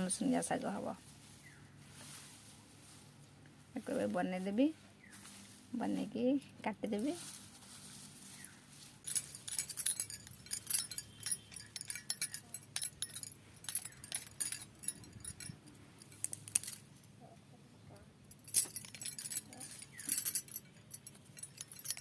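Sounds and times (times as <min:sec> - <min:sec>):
light clinking and jingling: 0:08.4 - 0:22.0.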